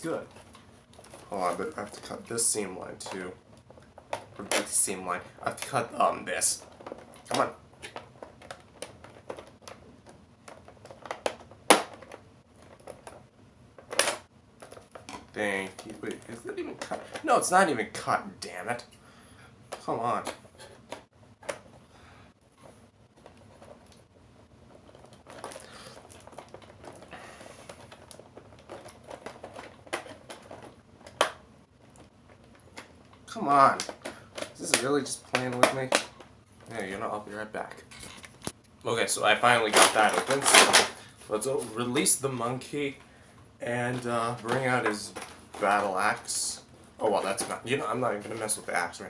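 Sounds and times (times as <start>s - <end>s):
packaging rustling and crinkling: 24.6s - 36.8s, 39.3s - 42.9s.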